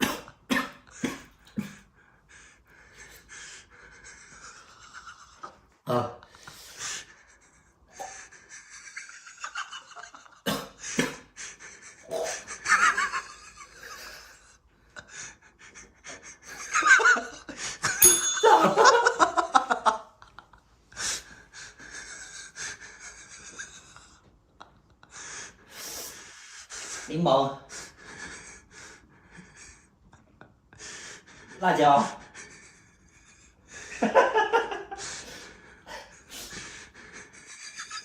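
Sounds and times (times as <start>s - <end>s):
people laughing: 8.0s - 10.4s, 11.4s - 20.6s, 21.8s - 25.4s, 32.3s - 35.2s, 37.0s - 38.0s.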